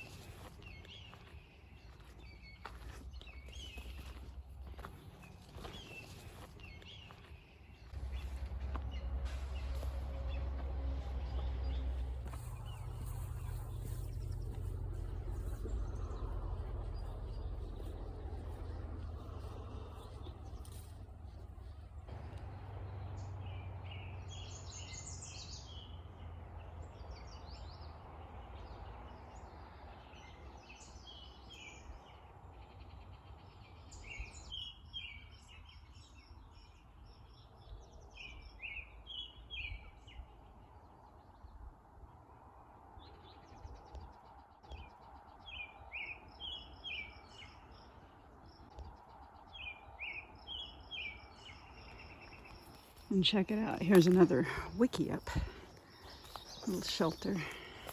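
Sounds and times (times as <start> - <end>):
faint low rumble: 0.0 - 24.8
songbirds singing: 0.0 - 57.9.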